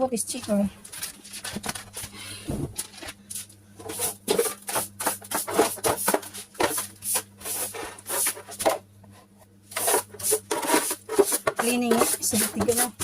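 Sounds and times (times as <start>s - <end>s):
brush sweeping a bare floor: 3.8s - 8.7s, 9.7s - 13.0s.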